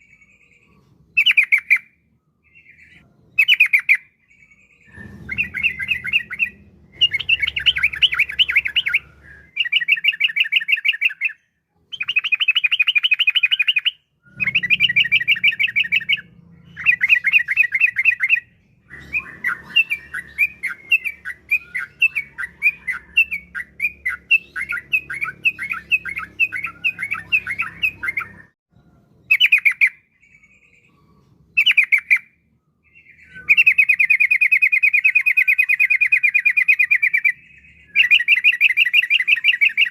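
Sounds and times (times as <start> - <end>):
bird singing chattering phrases: 2.5 - 28.5.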